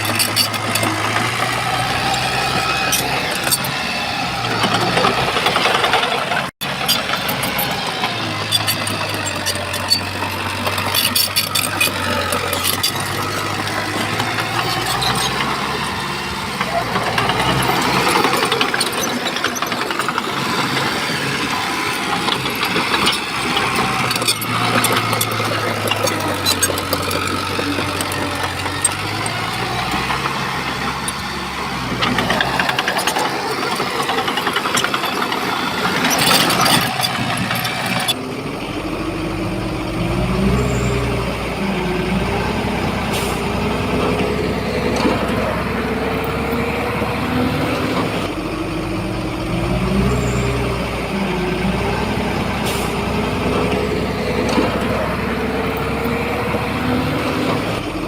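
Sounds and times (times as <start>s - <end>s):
clanks and knocks: 0.0s - 38.2s
diesel engine under load: 0.0s - 58.0s.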